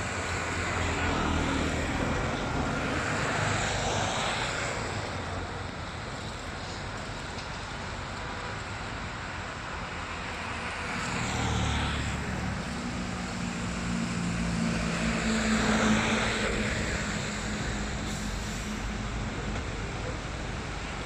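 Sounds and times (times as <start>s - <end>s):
vehicle engine passing by: 10.9s - 19.0s.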